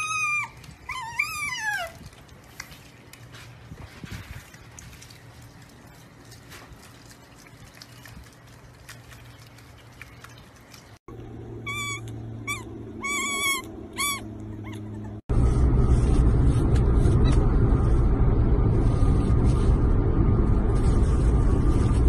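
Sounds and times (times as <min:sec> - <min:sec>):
loud steady low rumble: 0:11.1 - 0:22.0.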